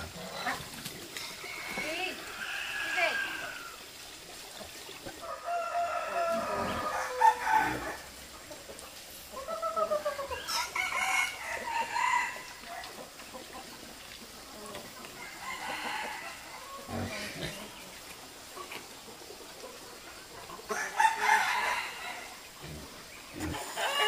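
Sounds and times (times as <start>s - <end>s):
rooster crowing: 1.4s - 3.8s, 5.2s - 8.1s, 10.5s - 12.8s, 15.2s - 17.0s, 20.7s - 22.4s, 23.8s - 24.0s.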